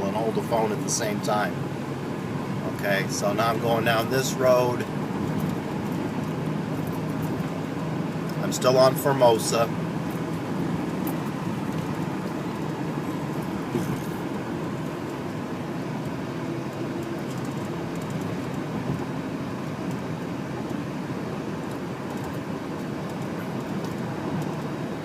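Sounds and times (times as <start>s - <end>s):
car road noise and engine hum: 0.0s - 25.0s.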